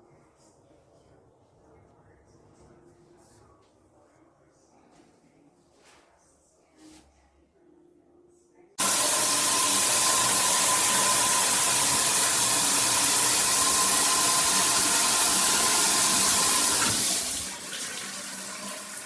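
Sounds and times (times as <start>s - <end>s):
water spraying from shower head: 8.8s - 17.7s.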